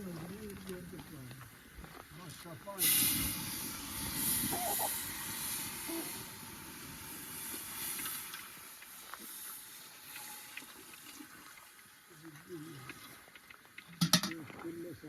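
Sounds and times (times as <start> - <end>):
hiss: 2.7 - 11.8.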